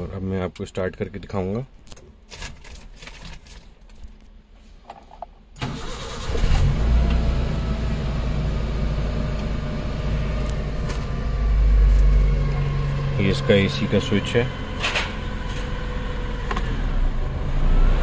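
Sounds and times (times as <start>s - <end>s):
car engine starting and idling: 5.5s - 18.0s.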